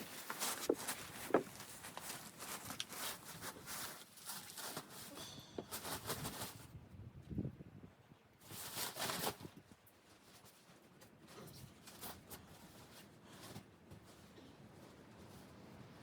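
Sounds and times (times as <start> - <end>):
short crunches and knocks: 0.0 - 3.0.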